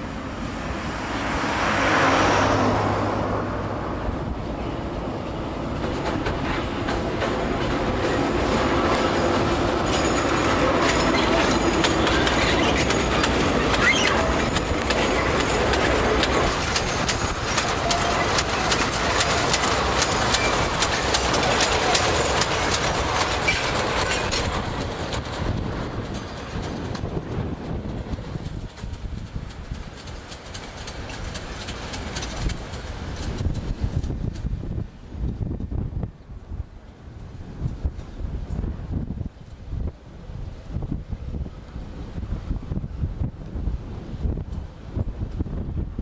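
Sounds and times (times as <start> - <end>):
train wheels clicking over rail joints: 4.2 - 35.8.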